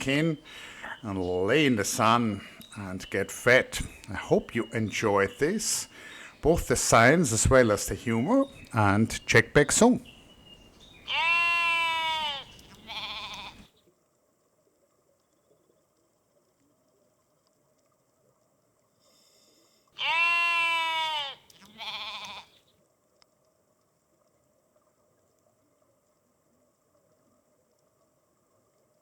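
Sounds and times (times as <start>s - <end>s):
sheep bleating: 11.0s - 13.7s, 20.0s - 22.6s.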